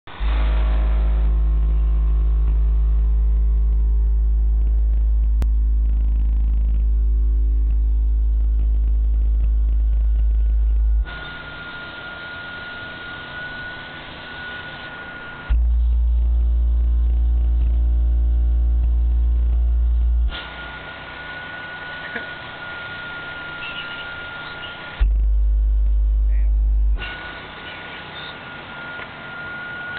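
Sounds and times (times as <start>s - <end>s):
loud deep bass tone: 0.0s - 11.8s, 15.3s - 20.6s, 24.9s - 27.2s
faint high whine: 0.1s - 29.9s
hiss: 20.3s - 25.0s.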